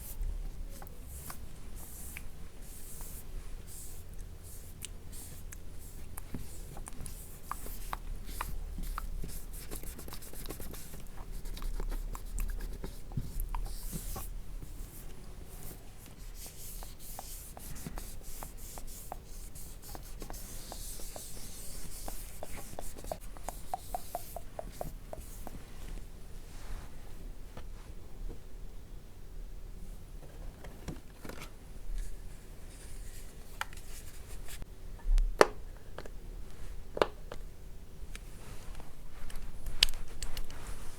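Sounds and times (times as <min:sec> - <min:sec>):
fingertips tapping and rubbing: 0:04.8 - 0:25.6.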